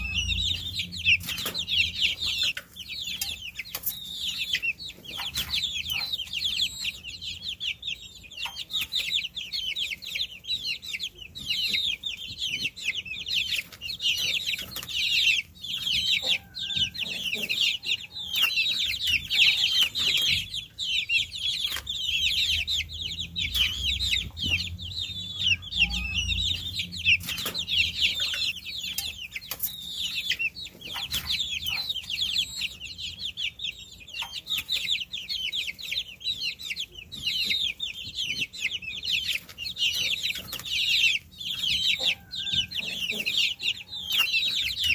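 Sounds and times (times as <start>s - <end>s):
faint low rumble: 0.0s - 2.3s, 22.0s - 28.7s
baby chicks peeping: 0.0s - 44.9s.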